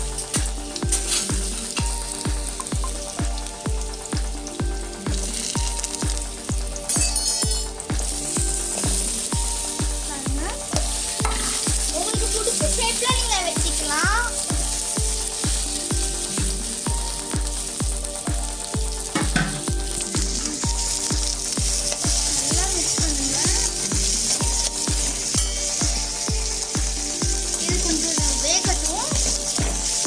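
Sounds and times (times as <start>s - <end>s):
background music with low beat: 0.0s - 30.0s
food sizzling in hot oil: 0.2s - 30.0s.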